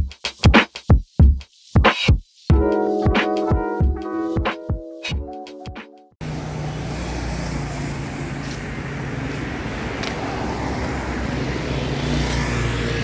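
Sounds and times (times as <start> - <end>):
road traffic noise: 6.2 - 13.0
vehicle engine hum: 6.2 - 13.0.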